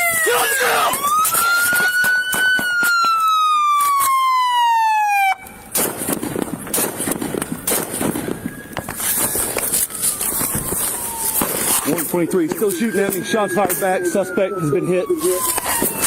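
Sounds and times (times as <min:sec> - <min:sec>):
police siren wailing: 0:00.0 - 0:05.7, 0:08.1 - 0:16.0
gunshots: 0:00.7 - 0:03.2, 0:05.7 - 0:09.6
noisy rustling: 0:05.6 - 0:13.3.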